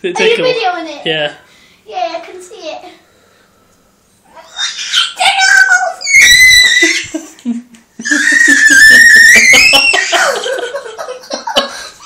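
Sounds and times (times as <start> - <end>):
boy screaming: 4.3 - 7.2, 8.0 - 10.4
laughter: 6.7 - 12.0.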